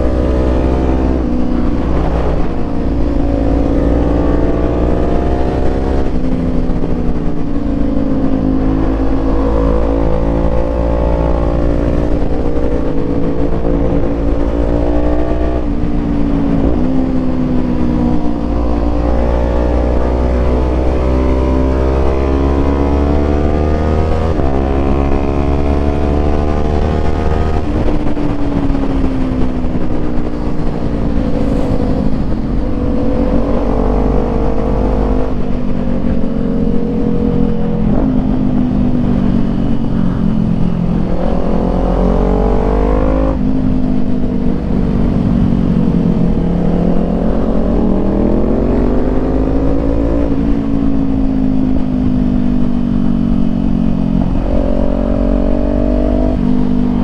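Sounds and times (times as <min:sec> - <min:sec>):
motorcycle engine shifting gears: 0:00.0 - 0:57.0.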